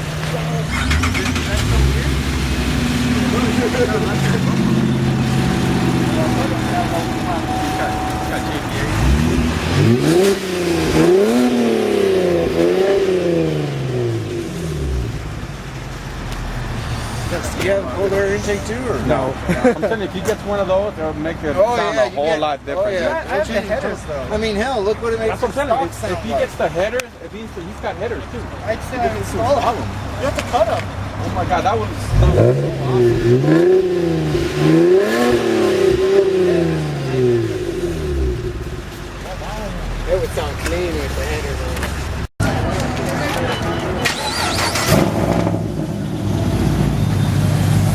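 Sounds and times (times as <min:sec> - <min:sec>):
car engine revving: 0:00.0 - 0:19.5, 0:29.2 - 0:43.4, 0:44.0 - 0:47.9.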